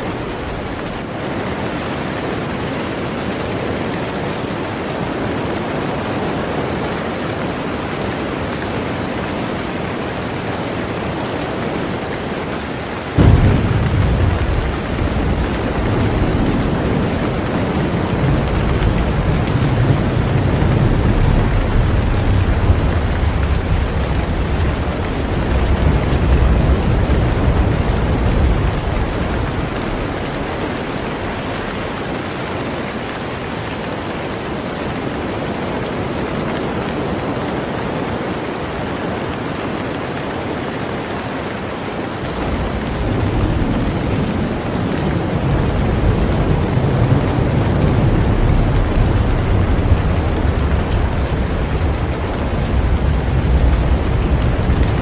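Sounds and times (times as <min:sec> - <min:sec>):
heavy rain on a boat: 0:00.0 - 0:55.0
deep low rumble: 0:13.2 - 0:31.7.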